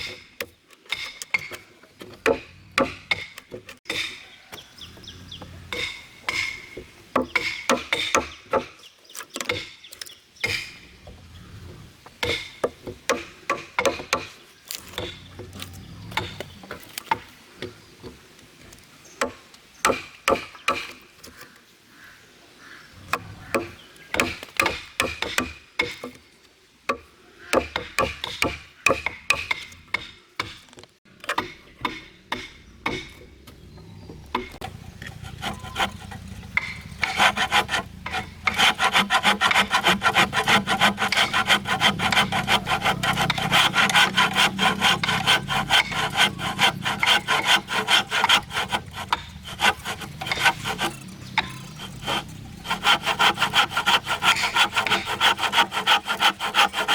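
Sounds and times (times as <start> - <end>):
saw cutting wood: 34.3 - 56.9.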